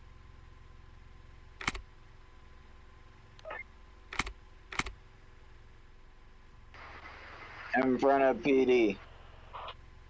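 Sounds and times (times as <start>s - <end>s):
low steady hum: 0.0s - 10.0s
sharp clicks: 1.6s - 1.8s, 3.4s - 5.0s.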